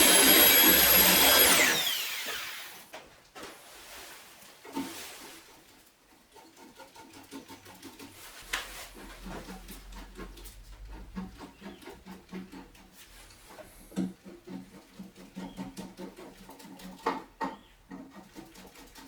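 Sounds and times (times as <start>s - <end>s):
angle grinder whining: 0.0s - 2.8s.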